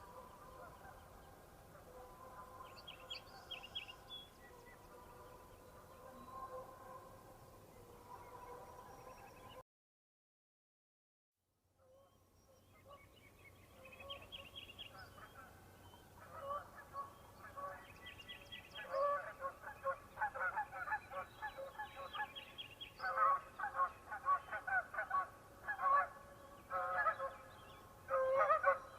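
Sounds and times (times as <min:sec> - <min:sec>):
geese honking: 0:23.0 - 0:27.4, 0:28.1 - 0:28.9.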